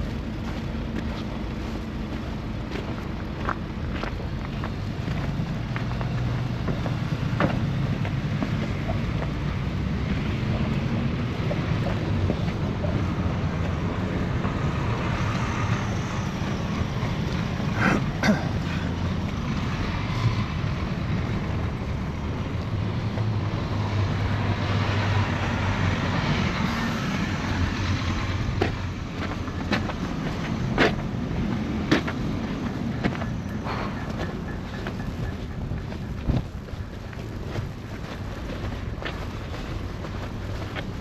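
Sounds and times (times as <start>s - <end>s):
city street rumble: 0.0s - 41.0s
wind on microphone: 31.2s - 41.0s.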